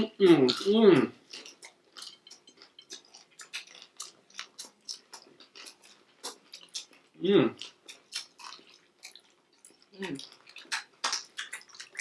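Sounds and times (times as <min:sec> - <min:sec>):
chewing and crunching food: 0:00.0 - 0:12.0.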